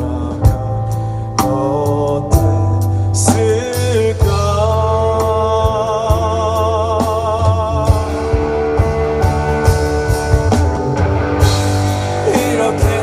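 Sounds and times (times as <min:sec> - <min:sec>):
bass guitar: 0:00.0 - 0:13.0
drum kit: 0:00.0 - 0:13.0
keyboard: 0:00.0 - 0:13.0
guitars: 0:02.9 - 0:13.0.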